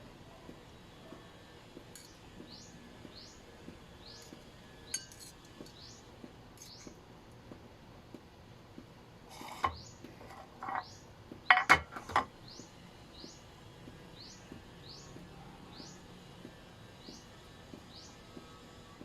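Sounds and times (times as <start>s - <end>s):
small bird chirping: 5.7s - 7.0s, 9.3s - 11.1s, 12.4s - 13.5s, 14.2s - 16.1s
dishes clinking: 9.4s - 10.9s, 11.5s - 12.3s.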